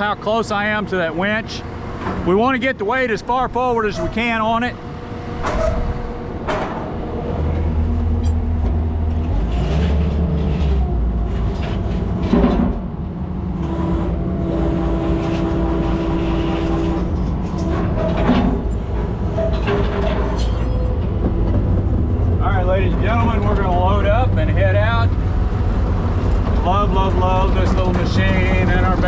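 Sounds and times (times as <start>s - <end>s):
diesel engine working: 0.0s - 29.0s
hydraulic whine: 4.1s - 29.0s
loud metallic clunks: 5.1s - 12.9s, 15.2s - 26.8s.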